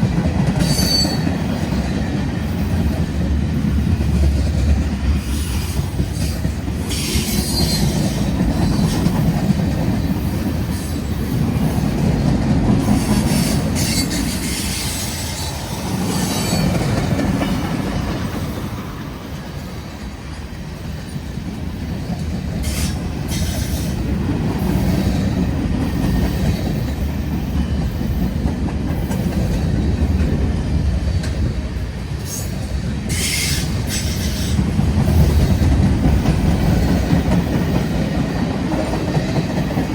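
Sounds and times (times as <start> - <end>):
train wheels rumbling on rail: 0.0 - 39.9
wheel squeal: 0.6 - 1.3.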